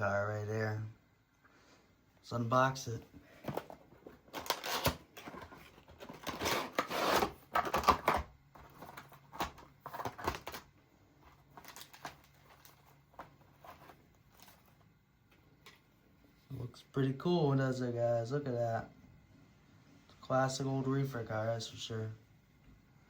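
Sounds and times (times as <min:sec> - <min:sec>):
packaging rustling and tearing: 0:03.4 - 0:14.8.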